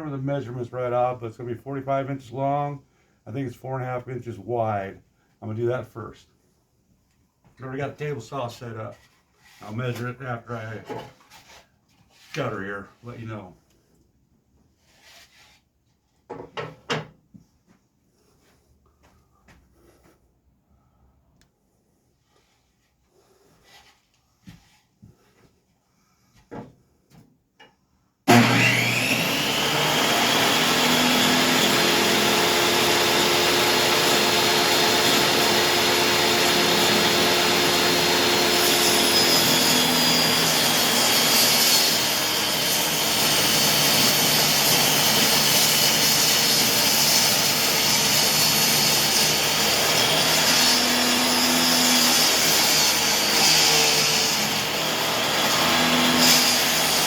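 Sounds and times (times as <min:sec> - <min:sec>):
table saw ripping wood: 0:28.3 - 0:57.0.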